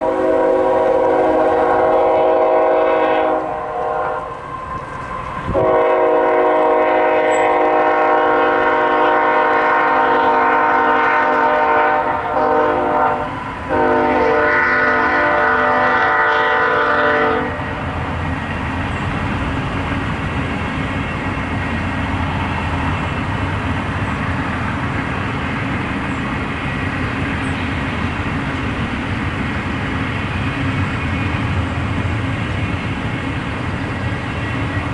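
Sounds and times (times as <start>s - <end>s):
locomotive air horn blasts: 0.0s - 4.4s, 5.5s - 17.9s
freight train rumbling past: 0.0s - 34.9s.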